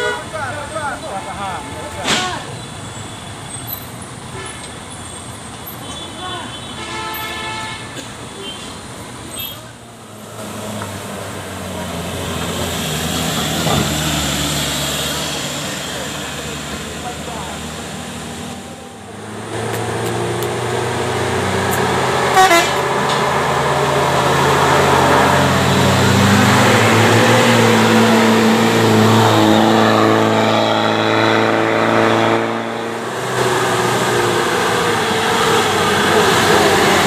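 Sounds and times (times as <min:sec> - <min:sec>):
truck diesel engine under load: 0:07.6 - 0:37.0.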